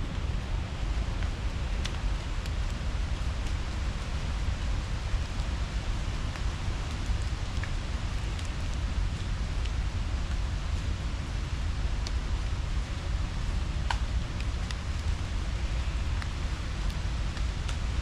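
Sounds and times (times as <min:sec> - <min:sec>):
faint ticks: 0:13.9 - 0:15.1.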